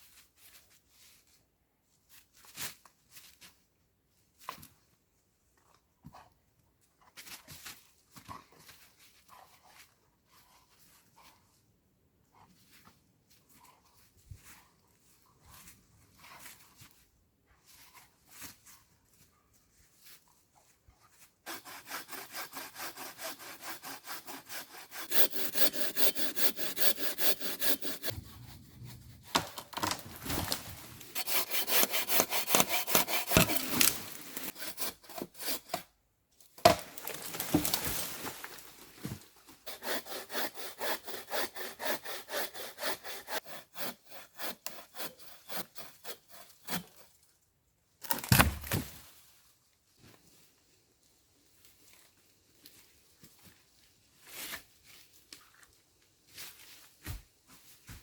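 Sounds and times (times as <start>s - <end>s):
hand saw cutting wood: 21.5s - 35.9s, 39.6s - 47.1s.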